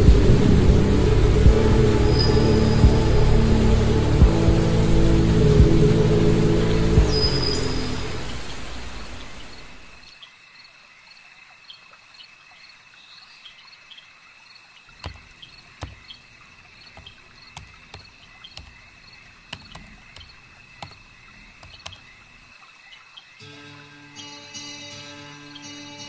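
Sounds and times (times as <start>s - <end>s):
crickets chirring: 6.0s - 23.6s
keyboard typing: 15.0s - 22.5s.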